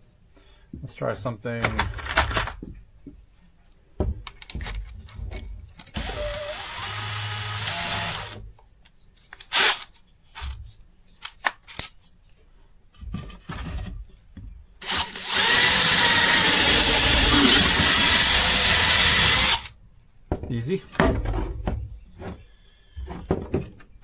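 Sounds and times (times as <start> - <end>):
tool handling clicks and knocks: 4.0 - 6.1
cordless drill running: 6.0 - 8.4, 9.5 - 9.8, 14.8 - 19.7.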